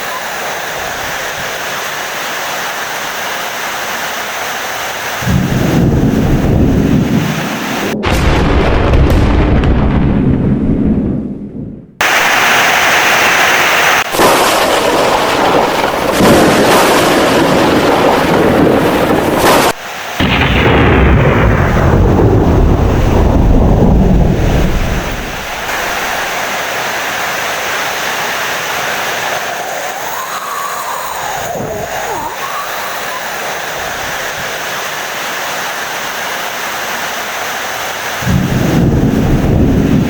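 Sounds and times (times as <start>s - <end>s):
steady rain: 0.0s - 8.0s, 12.0s - 40.0s
thunder crashing and rolling: 5.2s - 13.4s, 14.0s - 27.8s, 38.2s - 40.0s.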